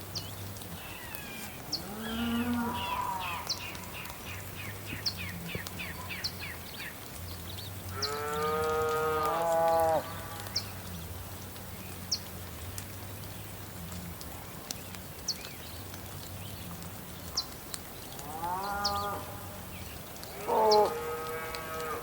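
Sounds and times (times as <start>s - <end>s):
cows mooing: 1.8s - 3.5s, 20.4s - 22.0s.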